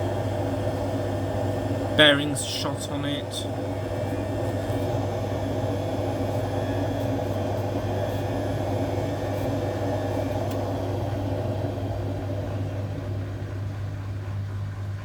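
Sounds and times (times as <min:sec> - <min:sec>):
washing machine spinning: 0:00.0 - 0:15.0.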